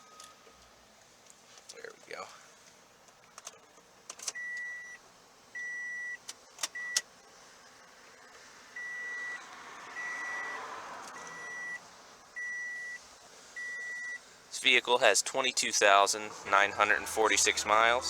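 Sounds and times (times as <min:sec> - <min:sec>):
high warning chime beeps: 0:04.4 - 0:05.0, 0:05.6 - 0:06.2, 0:08.8 - 0:09.4, 0:10.0 - 0:10.6, 0:11.2 - 0:11.8, 0:12.4 - 0:13.0, 0:13.6 - 0:14.2.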